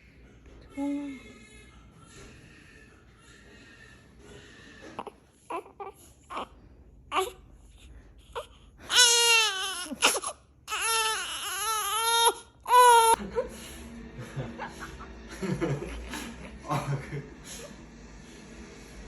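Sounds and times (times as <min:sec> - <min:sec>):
baby fussing: 0:08.3 - 0:13.2
baby wailing cries: 0:08.4 - 0:13.2.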